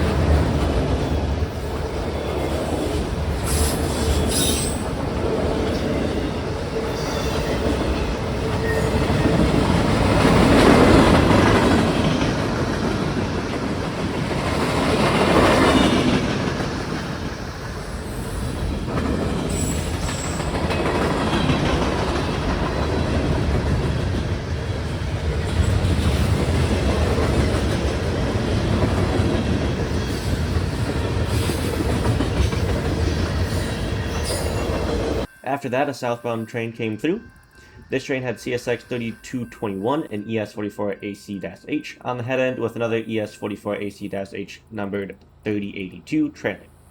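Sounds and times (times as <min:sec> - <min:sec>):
freight train wheels clacking: 0:00.0 - 0:35.3.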